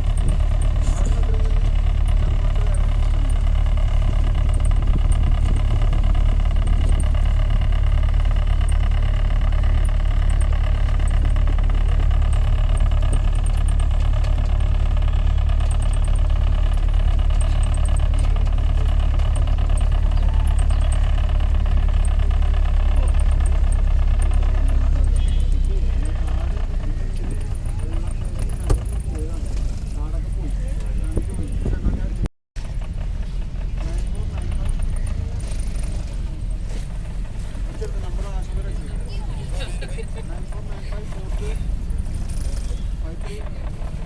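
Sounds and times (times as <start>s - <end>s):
boat engine droning: 0.0s - 44.0s.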